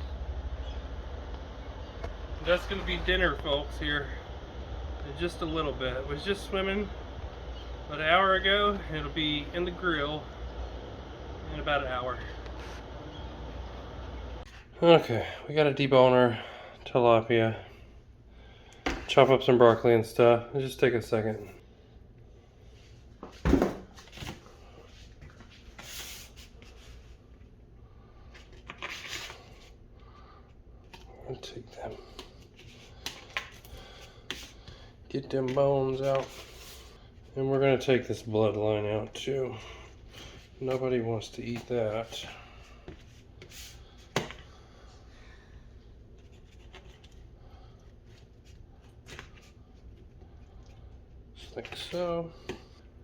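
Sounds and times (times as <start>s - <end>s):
low steady hum: 0.0s - 53.0s
heavy thump on counter: 23.4s - 23.9s.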